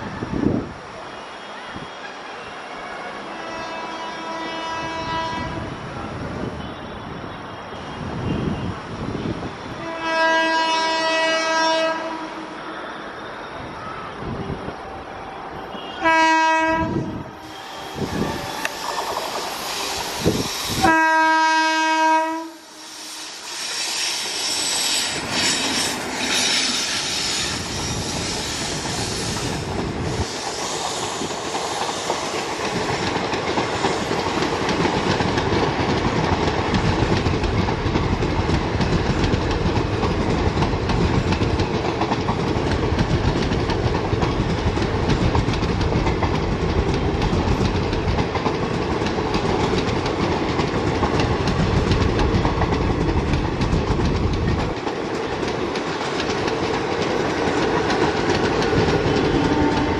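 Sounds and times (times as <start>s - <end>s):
train wheels rushing on rails: 0.0s - 59.9s
train horn blast: 2.7s - 5.8s, 9.7s - 13.3s, 15.2s - 19.0s, 19.8s - 28.0s, 59.2s - 59.9s.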